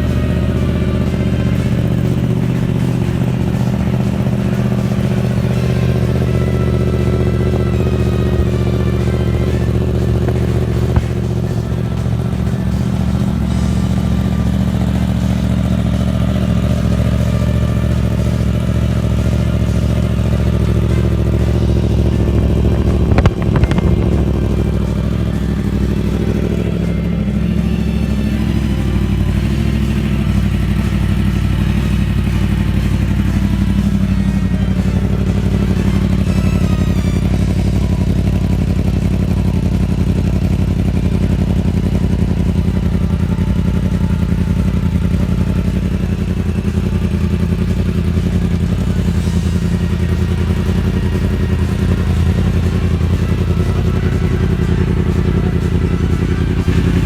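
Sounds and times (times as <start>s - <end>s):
motorcycle engine running: 0.0s - 57.0s
sharp knock: 23.1s - 24.5s.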